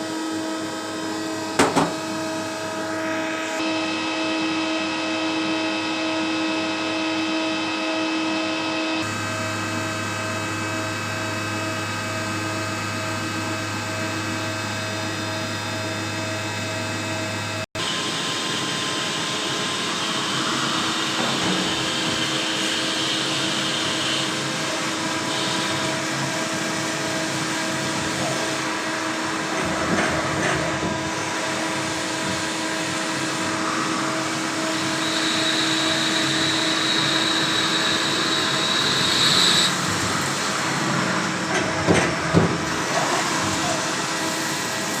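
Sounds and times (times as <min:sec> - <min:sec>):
cnc machine running: 0:00.0 - 0:45.0
high machine whine: 0:00.0 - 0:45.0
knocks: 0:01.6 - 0:02.0.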